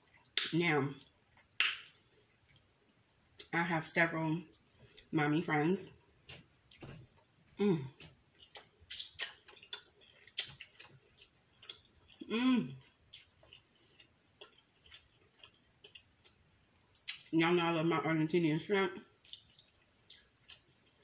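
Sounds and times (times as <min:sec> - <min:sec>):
person chewing: 0:00.0 - 0:03.5, 0:05.9 - 0:17.3, 0:19.2 - 0:21.0
wet mouth clicks: 0:00.2 - 0:02.6, 0:07.8 - 0:10.8.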